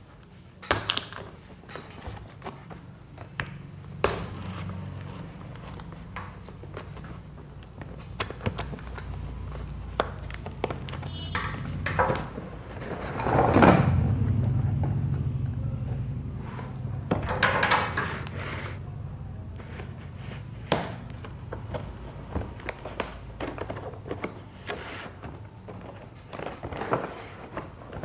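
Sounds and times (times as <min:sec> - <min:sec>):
low hum: 0:13.1 - 0:20.2.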